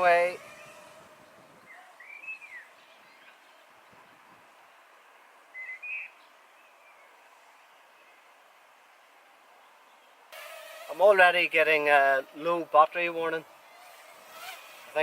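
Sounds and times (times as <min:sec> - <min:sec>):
faint outdoor hiss: 0:00.0 - 0:15.0
bird chirping: 0:00.4 - 0:04.1, 0:05.5 - 0:08.2.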